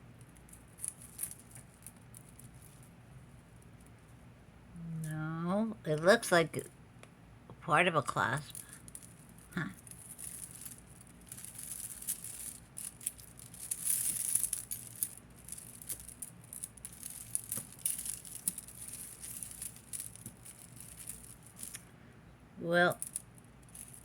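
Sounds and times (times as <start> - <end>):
jewelry chains clinking: 0.3 - 2.9, 8.4 - 21.8, 22.9 - 24.0.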